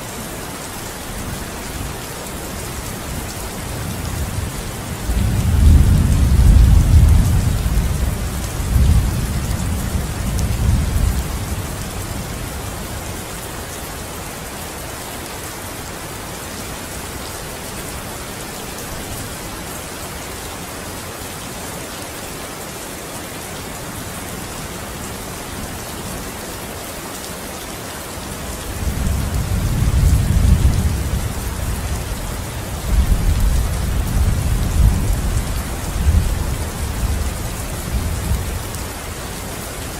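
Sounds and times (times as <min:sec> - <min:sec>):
steady rain hissing: 0:00.0 - 0:39.9
deep rolling thunder: 0:05.1 - 0:11.2.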